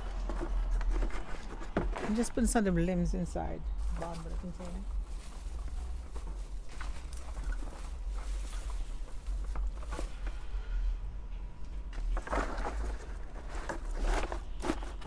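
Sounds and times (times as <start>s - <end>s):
vines rustling and crackling: 3.4s - 10.6s, 11.9s - 15.0s.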